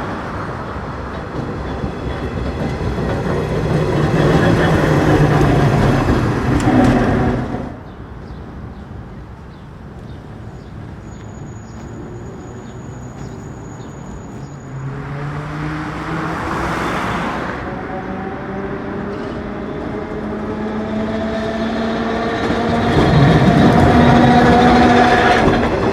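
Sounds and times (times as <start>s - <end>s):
vehicles passing: 0.0s - 25.9s.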